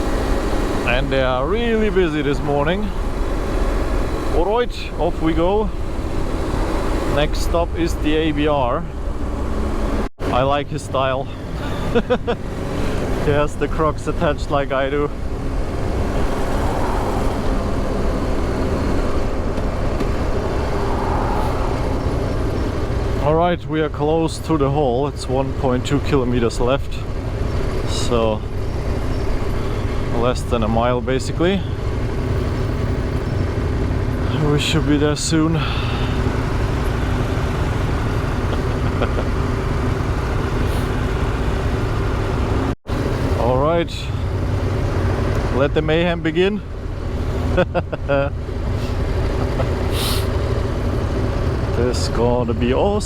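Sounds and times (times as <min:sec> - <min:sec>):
motorcycle engine drone: 0:00.0 - 0:53.0
road noise: 0:00.0 - 0:53.0
wind noise: 0:15.2 - 0:23.3.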